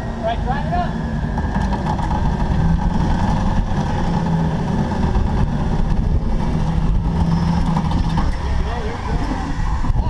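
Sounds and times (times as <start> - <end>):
vehicle engine running under load: 0.0 - 10.0.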